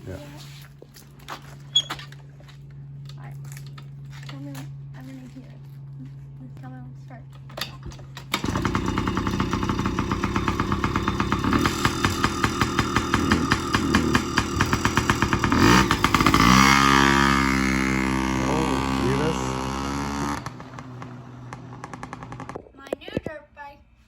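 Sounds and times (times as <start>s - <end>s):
two-stroke engine running: 8.0s - 22.6s.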